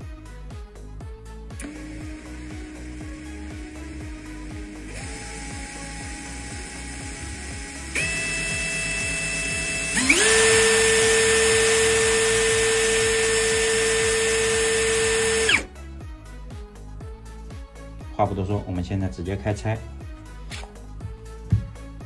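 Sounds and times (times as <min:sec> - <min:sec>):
cordless drill motor whining: 0:01.6 - 0:15.8.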